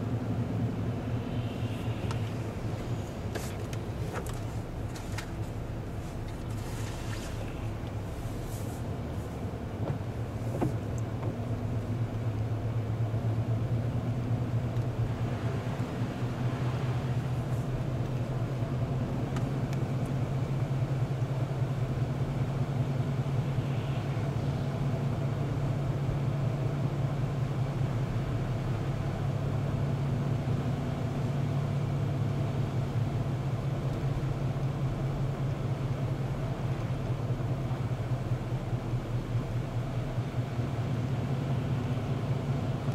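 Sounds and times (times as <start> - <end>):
car engine and road noise: 0.0 - 42.9.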